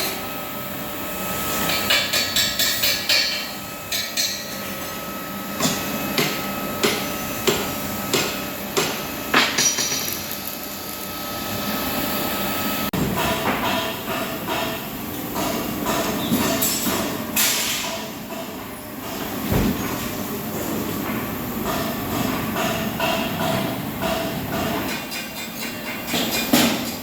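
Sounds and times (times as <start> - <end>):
hammer striking metal: 1.6 - 5.0, 5.6 - 10.2.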